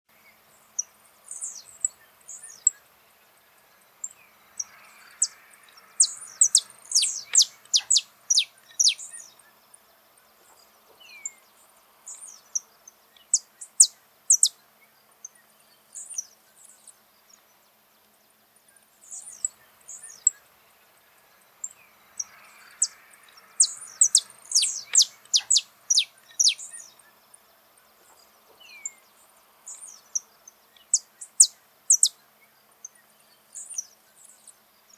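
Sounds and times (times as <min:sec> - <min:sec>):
finch singing sharp chips: 0:06.0 - 0:09.3, 0:23.6 - 0:27.0, 0:29.7 - 0:32.2.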